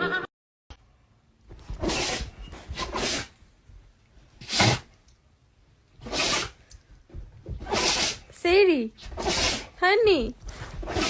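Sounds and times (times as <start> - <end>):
pet snorting: 1.7 - 3.3, 4.4 - 4.9, 6.0 - 6.6, 7.6 - 8.3, 9.0 - 9.8, 10.5 - 11.0.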